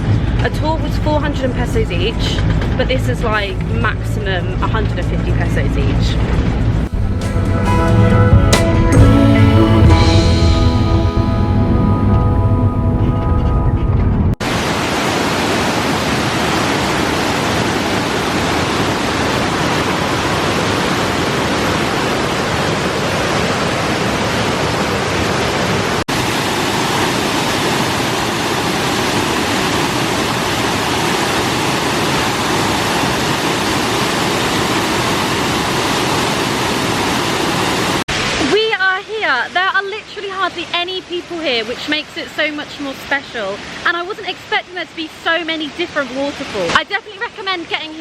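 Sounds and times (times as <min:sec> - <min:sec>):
waterfall rushing: 0:14.4 - 0:48.0.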